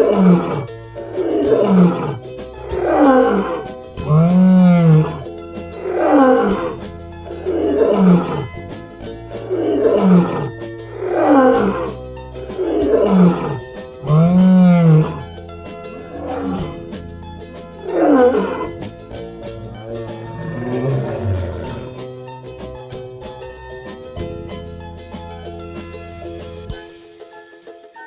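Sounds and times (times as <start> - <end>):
lion roaring: 0.0 - 8.8, 9.4 - 12.0, 12.6 - 15.3, 16.0 - 16.9, 17.8 - 18.8, 19.6 - 22.0
background music: 0.0 - 28.0.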